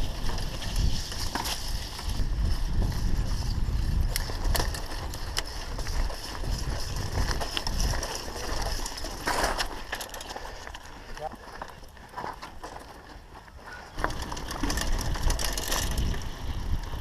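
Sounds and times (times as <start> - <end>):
wind buffeting microphone: 0.0 - 9.1, 14.1 - 17.0
bike rattling clicks and knocks: 0.0 - 17.0.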